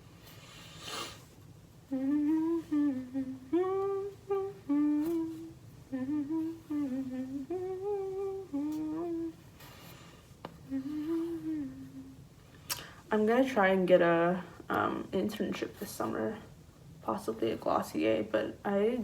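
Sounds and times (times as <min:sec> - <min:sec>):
woman humming: 0:01.9 - 0:09.5, 0:10.6 - 0:12.8.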